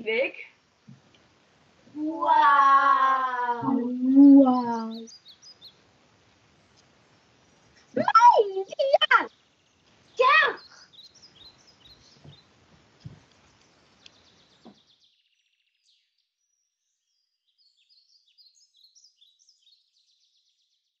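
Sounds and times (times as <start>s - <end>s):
faint birdsong chirping: 0.0s - 21.0s
light knocks: 13.0s - 13.4s.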